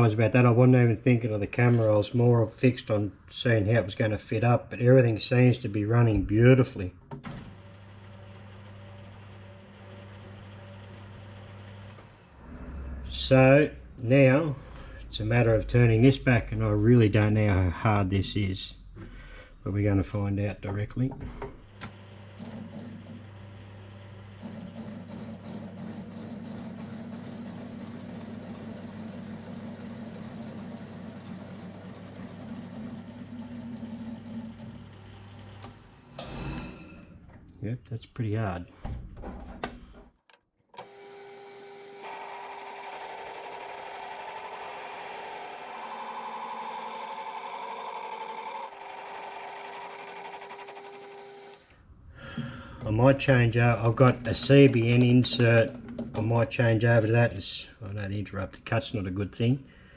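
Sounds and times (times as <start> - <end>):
lathe humming: 7.4 - 12.7, 21.6 - 35.6, 40.8 - 51.7
metal lathe cutting steel: 40.8 - 51.7.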